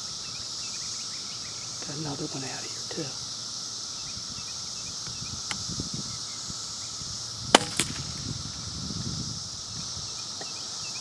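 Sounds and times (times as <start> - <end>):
high insect hum: 0.0 - 11.0
suppressed rifle shot: 7.5 - 8.7
fainter second crack: 7.6 - 8.5.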